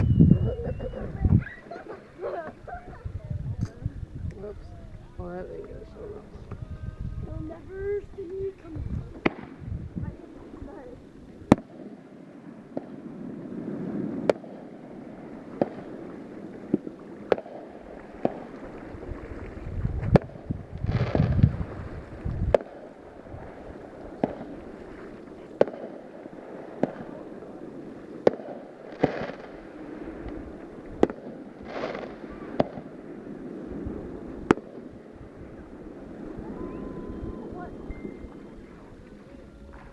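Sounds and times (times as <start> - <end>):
fireworks crackling bursts: 7.9 - 19.0, 20.1 - 21.7, 22.4 - 35.4
fireworks sharp bangs: 9.1 - 9.7, 11.5 - 18.9, 20.1 - 21.6, 22.4 - 35.1.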